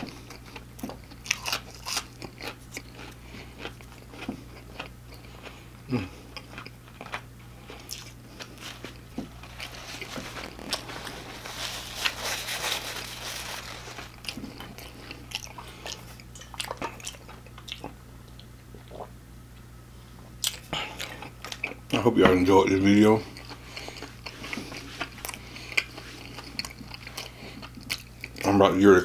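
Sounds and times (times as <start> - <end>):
chewing fried food: 0.0 - 19.2, 20.4 - 22.0, 22.7 - 28.6
paper napkin rustling: 8.5 - 14.8.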